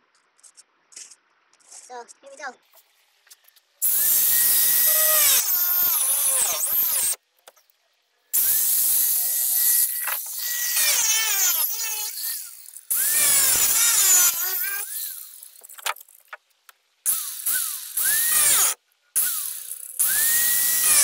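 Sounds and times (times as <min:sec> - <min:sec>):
power tool motor cutting: 0:03.8 - 0:07.2, 0:08.4 - 0:16.2, 0:17.1 - 0:21.0.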